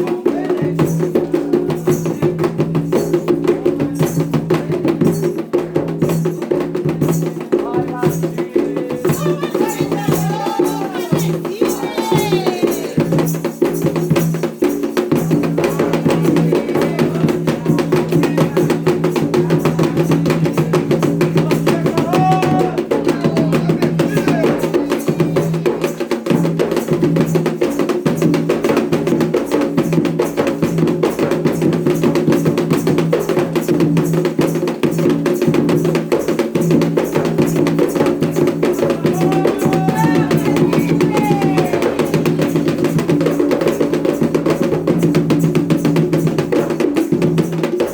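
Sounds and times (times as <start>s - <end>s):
people singing: 0.0s - 13.6s, 15.1s - 26.6s, 37.9s - 45.0s
clacking percussion: 0.0s - 47.9s
hand drums beating: 0.0s - 47.9s.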